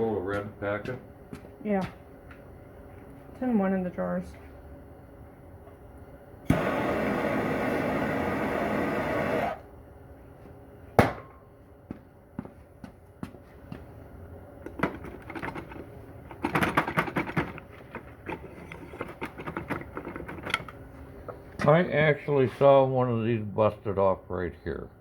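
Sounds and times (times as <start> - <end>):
sharp knock: 11.0 - 11.4.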